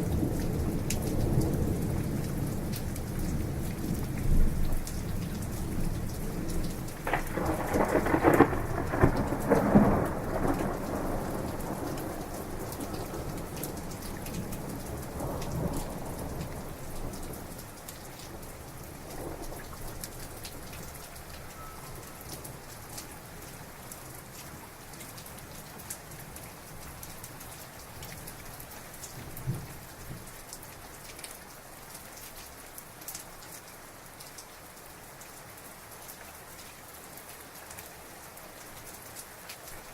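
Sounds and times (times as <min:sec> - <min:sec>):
crackling thunderclap: 0:00.0 - 0:17.6
faint thunder rumbles: 0:00.0 - 0:23.0
heavy rain: 0:00.0 - 0:39.9.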